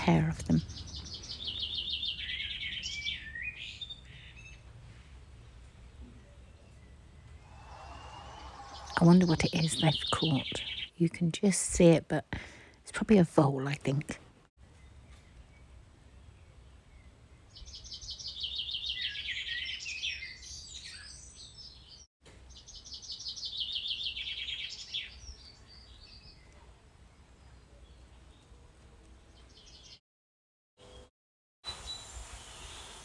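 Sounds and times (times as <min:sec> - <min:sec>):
songbird singing high notes: 0:07.5 - 0:10.9.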